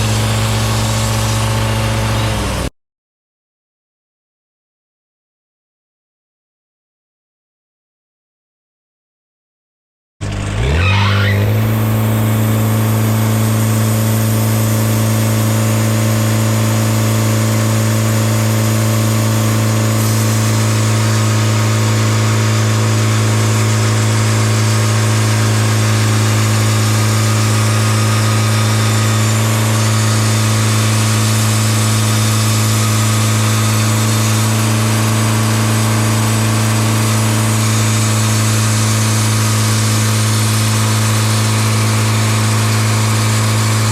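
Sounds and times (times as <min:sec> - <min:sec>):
sawmill engine revving: 0:00.0 - 0:02.7, 0:10.2 - 0:43.9.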